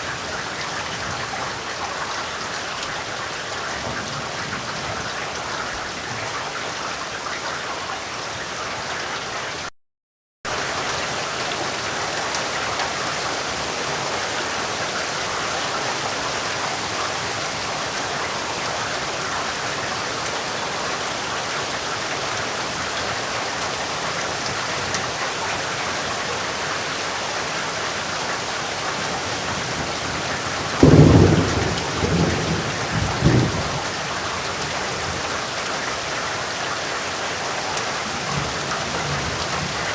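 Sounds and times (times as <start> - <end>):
heavy rain falling: 0.0 - 9.7, 10.5 - 39.9
thunder rumbling: 29.1 - 35.2.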